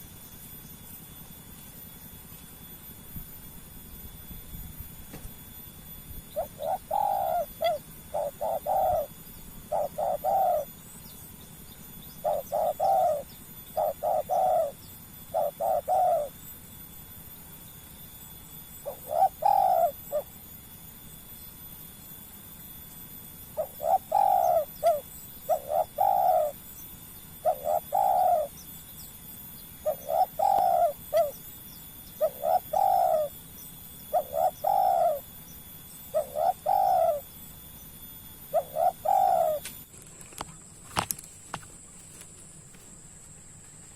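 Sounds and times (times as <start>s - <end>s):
dove cooing: 6.1s - 16.6s, 18.8s - 20.5s, 23.5s - 28.7s, 29.7s - 43.9s.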